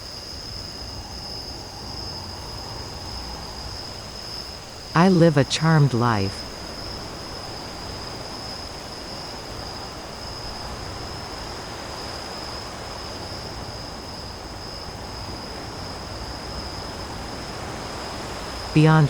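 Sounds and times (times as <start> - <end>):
crickets chirring: 0.0 - 4.9.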